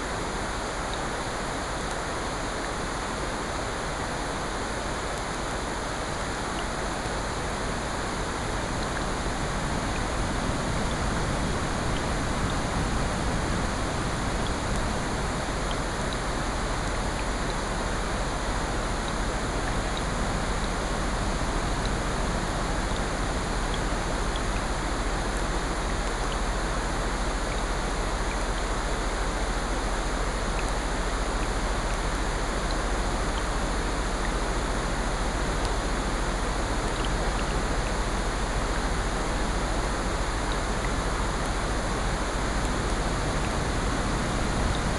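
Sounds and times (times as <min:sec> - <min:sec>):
steady rain: 0:00.0 - 0:44.9
ocean surf: 0:34.8 - 0:44.9.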